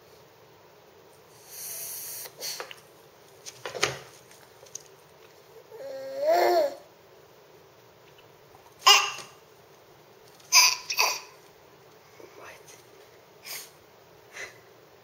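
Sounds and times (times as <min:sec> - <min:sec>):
baby cooing: 0:05.6 - 0:06.9, 0:08.8 - 0:09.4, 0:10.5 - 0:11.4.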